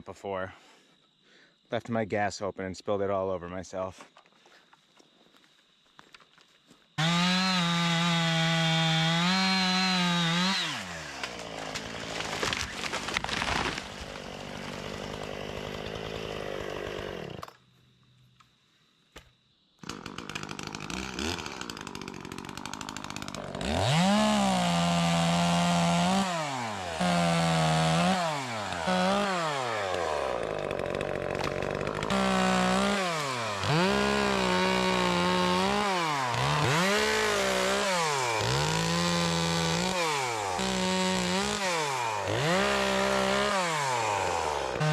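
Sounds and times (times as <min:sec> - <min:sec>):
chainsaw revving and idling: 0:07.0 - 0:17.6, 0:19.8 - 0:44.9.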